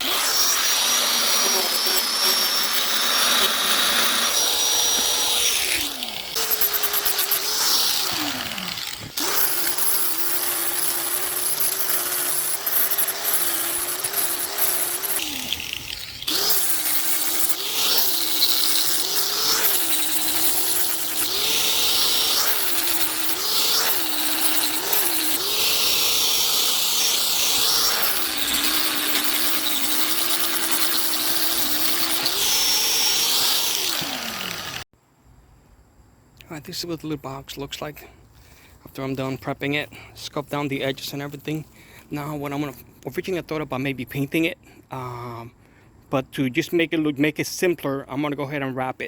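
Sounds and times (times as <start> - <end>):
electric power tool trimming: 0.0 - 34.9.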